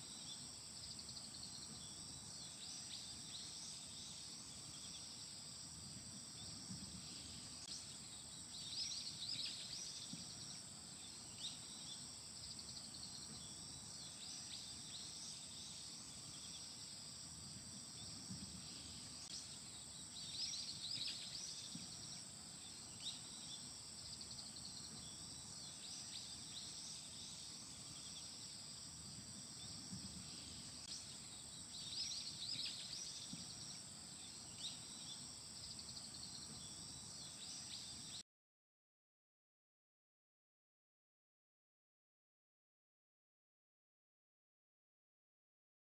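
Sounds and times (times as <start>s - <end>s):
insects chirping chorus: 0.0s - 38.2s.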